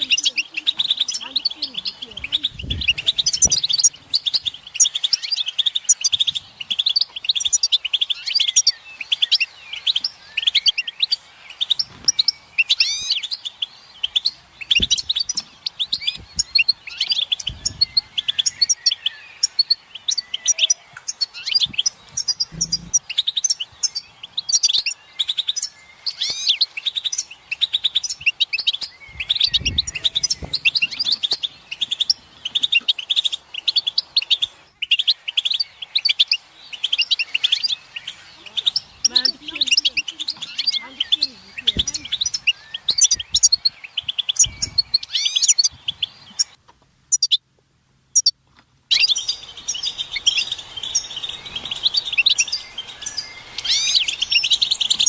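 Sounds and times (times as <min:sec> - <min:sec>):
goldfinches chirping and twittering: 0:00.0 - 0:47.4, 0:48.1 - 0:55.0
faint low thumps: 0:22.4 - 0:23.0.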